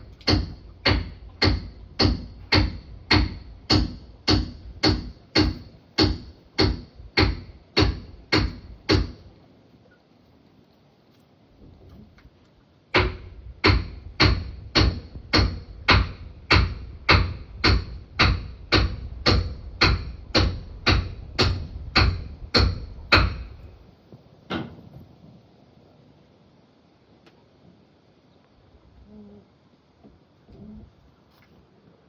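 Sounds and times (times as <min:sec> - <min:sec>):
sharp ringing knocks: 0:00.0 - 0:09.3, 0:12.9 - 0:23.8.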